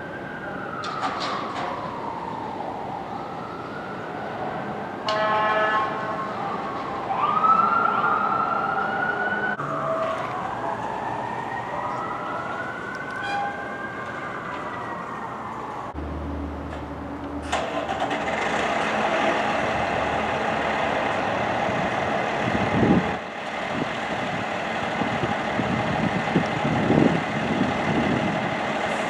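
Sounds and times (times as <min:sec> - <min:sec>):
fire engine sirens wailing: 0:00.0 - 0:29.0
air horn blast: 0:05.1 - 0:06.1.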